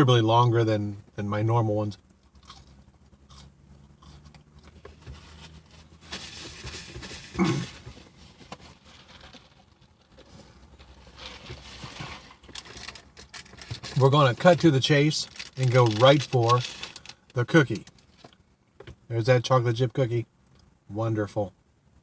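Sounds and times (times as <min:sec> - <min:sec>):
paper packaging crinkling: 0:05.2 - 0:18.3.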